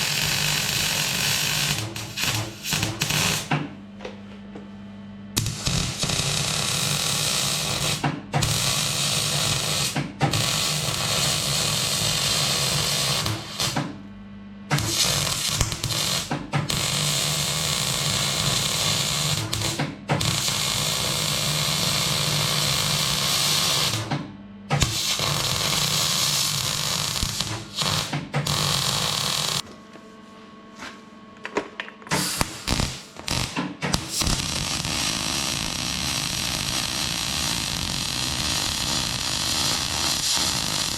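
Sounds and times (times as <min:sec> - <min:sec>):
arc welding crackle and buzz: 0:00.0 - 0:03.6, 0:05.4 - 0:14.0, 0:14.7 - 0:24.1, 0:24.7 - 0:29.6, 0:32.1 - 0:40.9.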